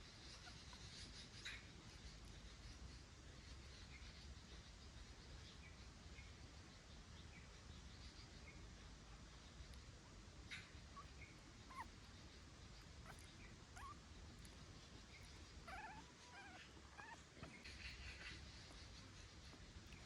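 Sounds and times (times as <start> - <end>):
puppy squeaking and whimpering: 11.0 - 12.0, 13.0 - 14.5, 15.1 - 18.4.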